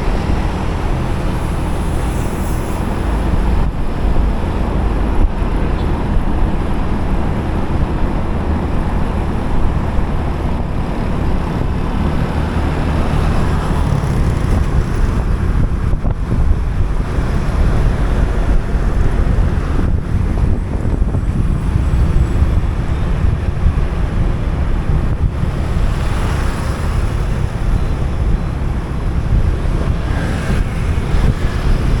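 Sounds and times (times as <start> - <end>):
road and traffic noise: 0.0 - 32.0
wind buffeting microphone: 0.0 - 32.0.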